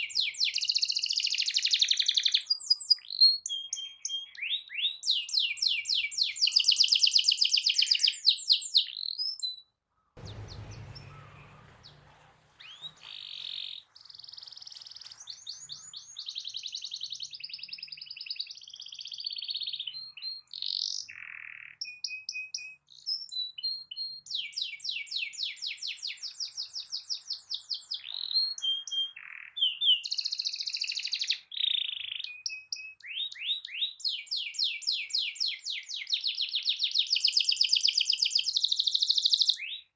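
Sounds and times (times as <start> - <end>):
brief low rumble: 10.2 - 13.2
canary singing trills: 10.2 - 39.9.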